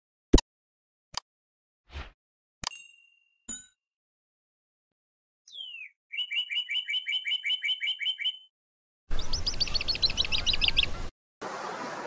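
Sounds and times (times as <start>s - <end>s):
bird chirping: 5.5s - 8.5s, 9.1s - 11.1s.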